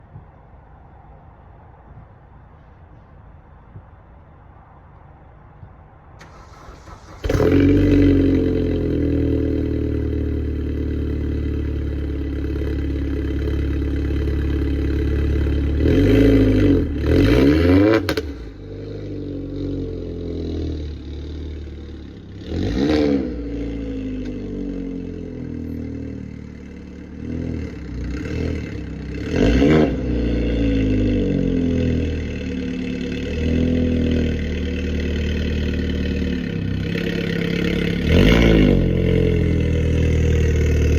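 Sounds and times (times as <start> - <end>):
car engine starting and revving: 6.2 - 40.9.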